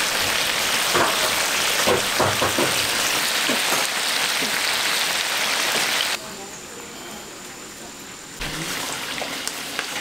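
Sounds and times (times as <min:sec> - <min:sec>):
stir-fry sizzling in a wok: 0:00.0 - 0:06.2, 0:08.4 - 0:10.0.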